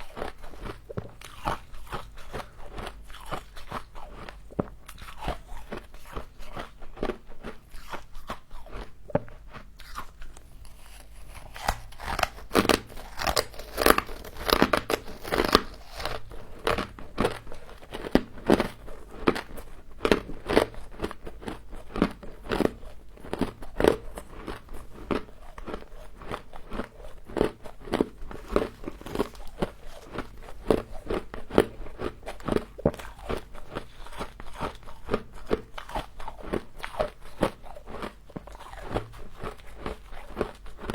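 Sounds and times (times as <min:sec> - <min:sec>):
person crunching ice: 0:09.8 - 0:17.3, 0:25.1 - 0:35.2.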